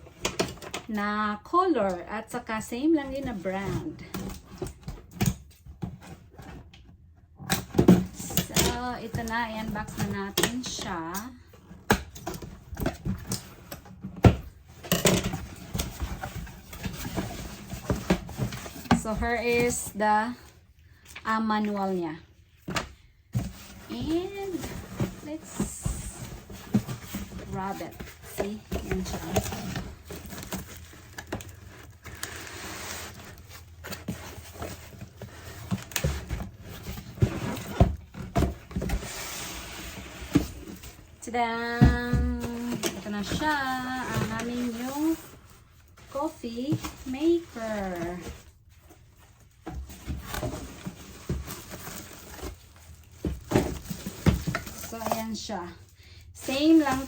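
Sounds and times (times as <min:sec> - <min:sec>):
cardboard box being handled: 0:22.6 - 0:55.4.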